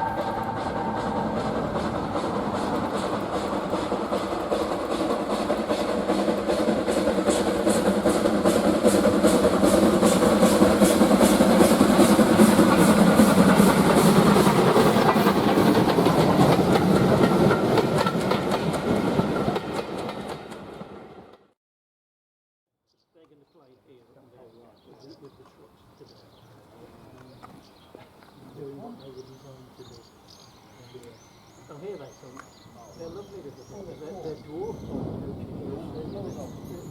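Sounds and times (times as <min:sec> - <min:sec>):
steam locomotive exhaust beats: 0:00.0 - 0:20.5, 0:29.0 - 0:36.9
train wheel noise: 0:00.0 - 0:21.4, 0:26.9 - 0:36.9.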